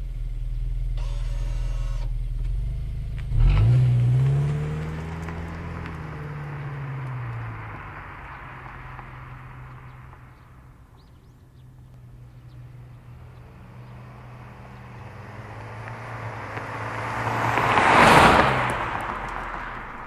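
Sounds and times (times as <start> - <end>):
car passing by: 3.3 - 11.2, 12.0 - 20.0.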